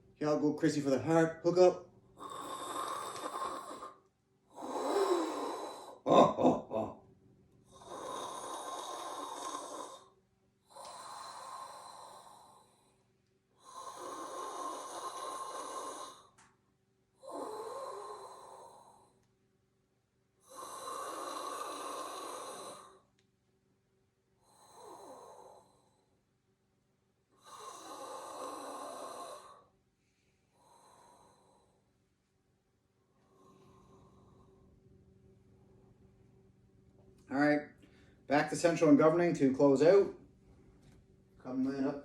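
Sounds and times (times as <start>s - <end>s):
person breathing deeply: 2.2s - 4.0s, 4.6s - 7.0s, 7.7s - 10.1s, 10.7s - 13.0s, 13.6s - 16.4s, 20.5s - 23.1s, 27.4s - 31.9s, 33.2s - 34.8s.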